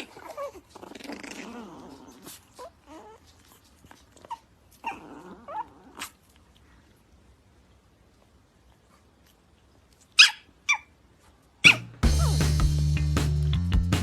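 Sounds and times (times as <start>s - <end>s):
dog whimpering: 0.0s - 3.4s, 4.2s - 6.2s, 11.6s - 12.3s.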